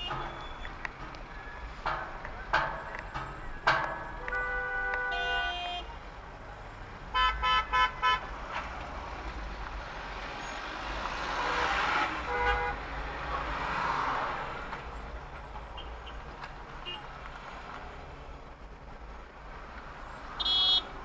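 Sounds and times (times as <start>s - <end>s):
car horns honking: 0.0s - 0.8s, 1.4s - 6.0s, 7.1s - 8.8s, 10.3s - 13.9s, 15.6s - 17.2s, 20.3s - 21.0s
road noise: 0.0s - 21.0s.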